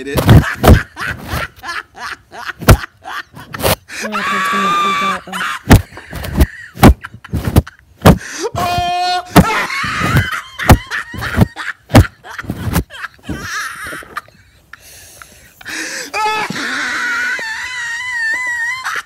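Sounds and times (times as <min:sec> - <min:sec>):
loud sharp knocks and thumps: 0:00.2 - 0:00.9, 0:05.7 - 0:08.2
high-pitched vocal squeals: 0:16.1 - 0:19.0.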